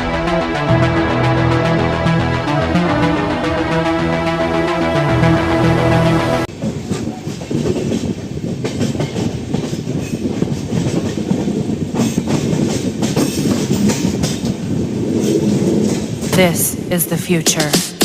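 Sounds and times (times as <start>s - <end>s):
train wheels clattering on rails: 6.5s - 16.4s.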